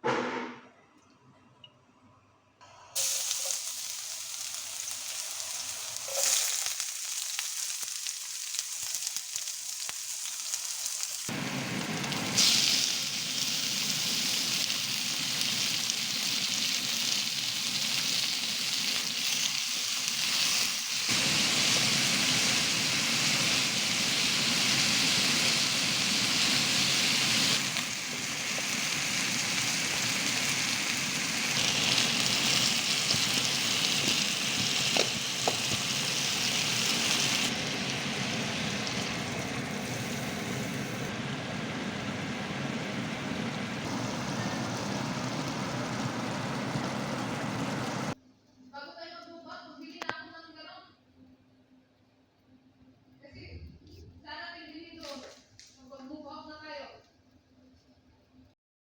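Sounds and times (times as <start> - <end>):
food sizzling in oil: 3.0 - 48.2.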